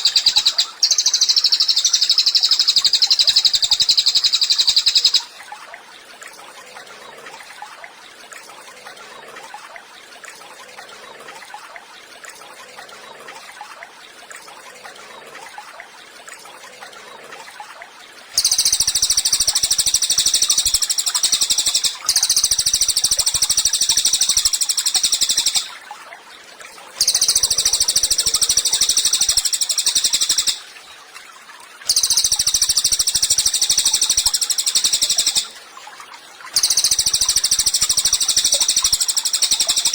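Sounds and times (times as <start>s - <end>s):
songbird chattering song: 0.0s - 5.3s, 18.4s - 25.8s, 27.0s - 30.7s, 31.9s - 35.6s, 36.6s - 39.9s.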